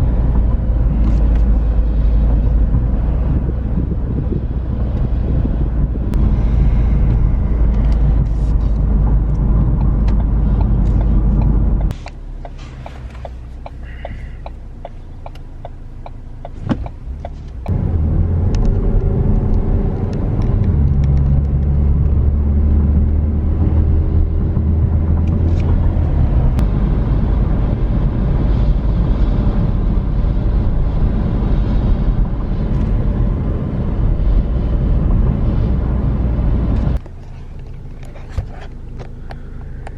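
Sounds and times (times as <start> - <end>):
car engine and road rumble: 0.0 - 39.9
regular ticking: 9.1 - 17.8.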